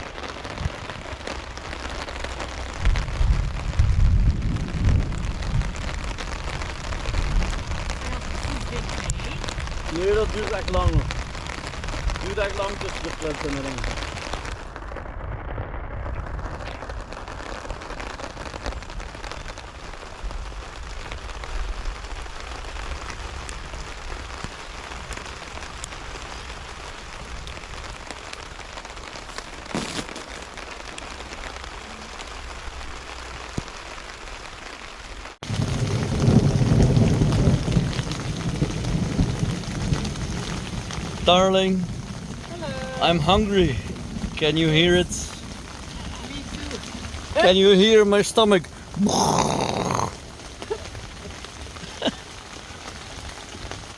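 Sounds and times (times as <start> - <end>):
rain falling: 0.0 - 53.9
deep rumble of thunder: 2.7 - 13.9, 35.4 - 47.4.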